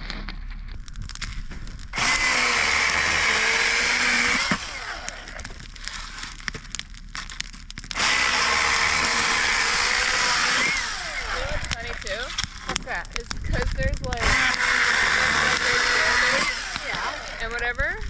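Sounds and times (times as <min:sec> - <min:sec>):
small motor whirring: 0:02.0 - 0:06.3, 0:08.0 - 0:12.8, 0:14.1 - 0:17.7.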